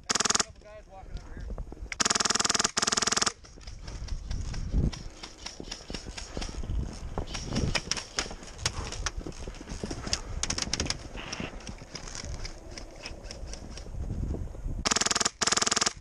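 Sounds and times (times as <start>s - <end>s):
rapid full-auto airsoft burst: 0.0s - 0.5s, 2.0s - 3.4s, 14.8s - 16.0s.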